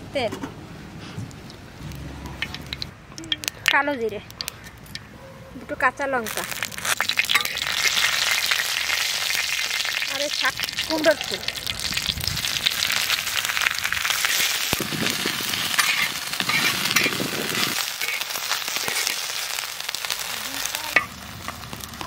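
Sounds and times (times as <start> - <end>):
vegetables sizzling in oil: 1.5 - 3.8, 6.2 - 22.0
metal spatula stirring: 2.2 - 3.8, 6.5 - 8.3, 14.1 - 19.4.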